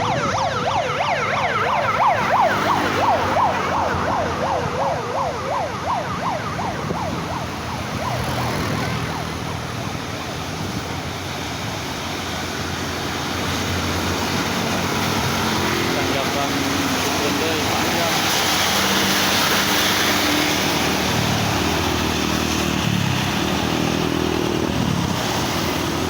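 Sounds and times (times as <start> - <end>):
electronic siren warbling: 0.0 - 10.8.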